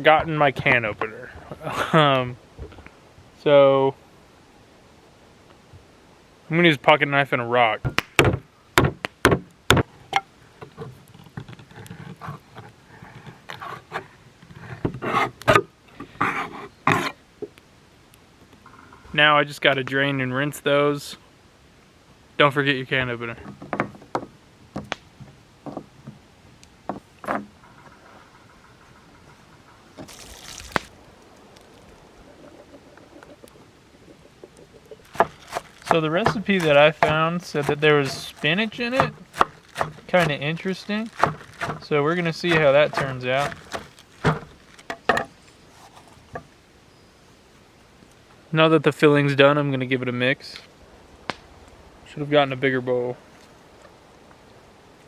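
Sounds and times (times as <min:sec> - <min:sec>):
liquid pouring: 0:30.0 - 0:30.9.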